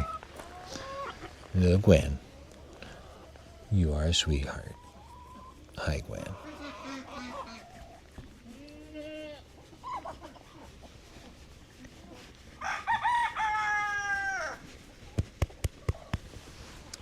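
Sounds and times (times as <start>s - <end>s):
soft low animal call: 4.4s - 12.4s
rooster crowing: 12.6s - 14.6s.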